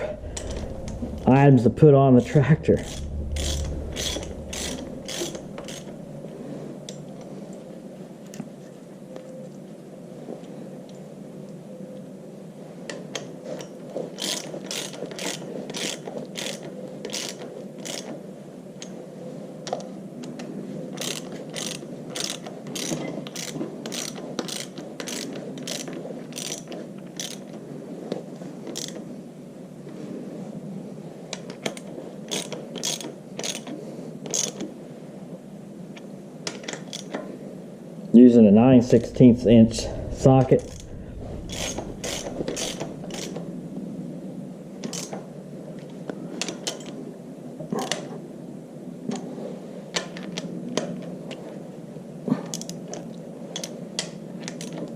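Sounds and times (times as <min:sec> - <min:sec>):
steady low hum: 0:00.0 - 0:08.2, 0:37.3 - 0:45.8
ratchet wrench clicking: 0:02.8 - 0:06.0, 0:14.2 - 0:18.1, 0:21.0 - 0:27.4, 0:28.8 - 0:29.0, 0:32.3 - 0:33.7, 0:34.3 - 0:34.6, 0:41.5 - 0:43.4.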